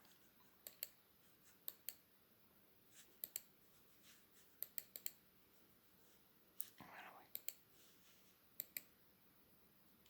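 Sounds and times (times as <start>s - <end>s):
computer mouse clicks: 0.0s - 1.0s, 1.6s - 2.1s, 3.1s - 3.5s, 4.6s - 5.2s, 6.6s - 7.6s, 8.6s - 9.0s.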